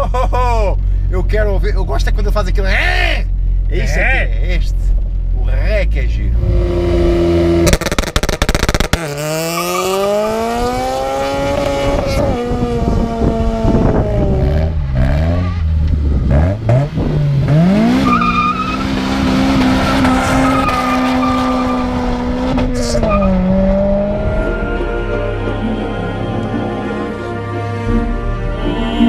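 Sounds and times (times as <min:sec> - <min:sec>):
car engine revving hard: 0:06.4 - 0:26.6.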